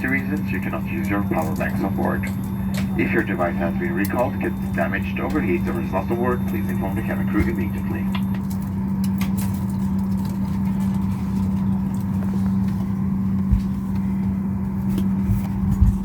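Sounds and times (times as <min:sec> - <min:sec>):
airliner cabin hum: 0:00.0 - 0:16.0
soft low thumps: 0:15.2 - 0:16.0.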